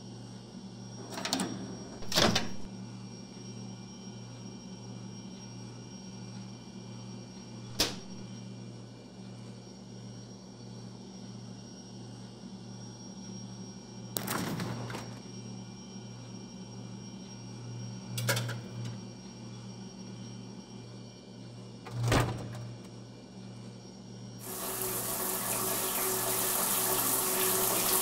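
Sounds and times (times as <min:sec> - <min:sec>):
door being worked open: 0:01.0 - 0:02.7, 0:21.9 - 0:22.9
door clunk: 0:01.0 - 0:02.7, 0:21.9 - 0:22.8
sharp click: 0:07.7 - 0:08.2.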